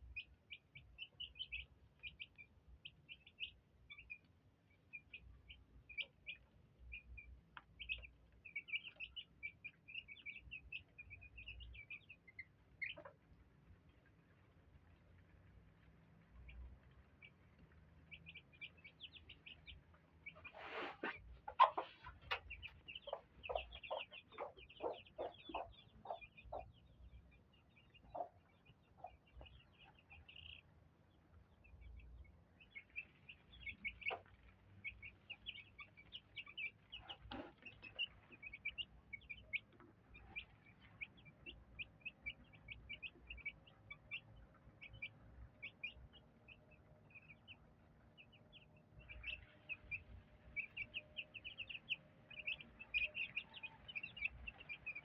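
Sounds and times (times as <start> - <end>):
chicks peeping: 0.0 - 55.0
hen clucking: 4.9 - 13.3, 18.1 - 30.7, 32.7 - 47.6, 48.2 - 55.0.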